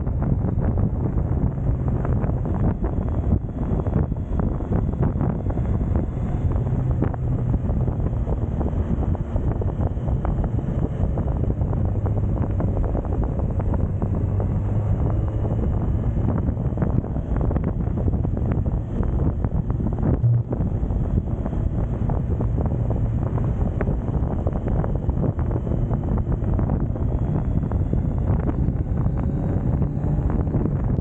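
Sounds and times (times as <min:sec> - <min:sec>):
motorcycle engine running: 0:00.0 - 0:31.0
wind buffeting microphone: 0:00.0 - 0:31.0.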